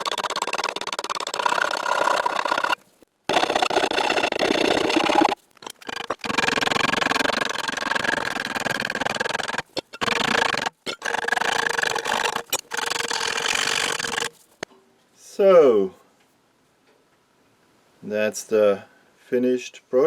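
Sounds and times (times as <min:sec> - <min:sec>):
grinder grinding steel: 0:00.0 - 0:14.4.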